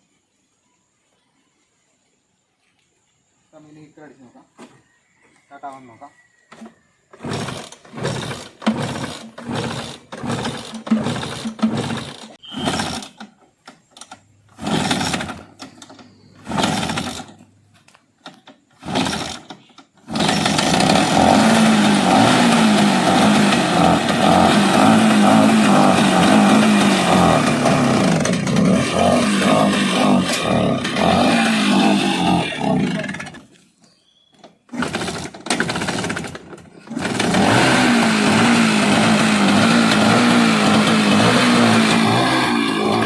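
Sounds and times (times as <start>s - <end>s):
engine kick-start attempts: 6.5s - 33.6s, 34.3s - 43.0s
two-stroke engine running: 7.2s - 13.3s, 14.5s - 17.4s, 18.8s - 33.4s, 34.7s - 43.0s.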